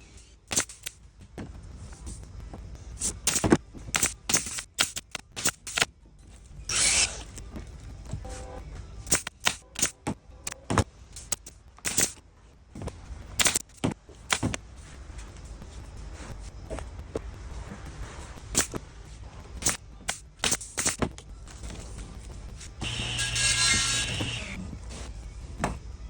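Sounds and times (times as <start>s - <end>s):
staple gun snapping: 3.3s - 5.9s.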